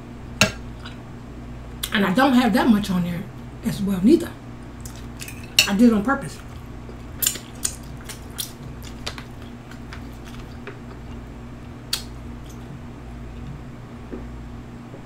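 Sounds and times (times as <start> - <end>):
steady low hum: 0.0 - 15.0
person chewing: 4.8 - 5.6, 6.4 - 13.6.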